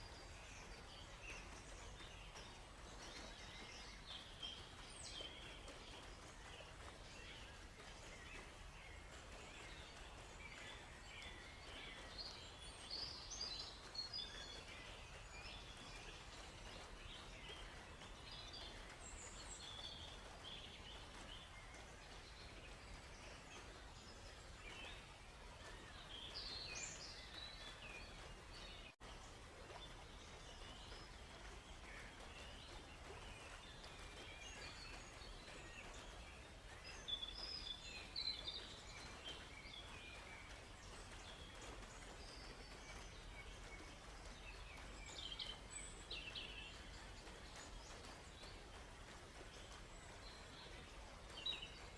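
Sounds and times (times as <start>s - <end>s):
faint steady hiss: 0.0s - 51.9s
small birds chirping and trilling: 0.0s - 51.9s.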